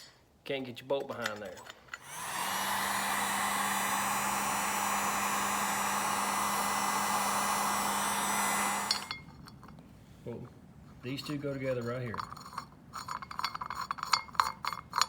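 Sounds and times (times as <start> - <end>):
heat gun blowing: 2.0 - 9.3.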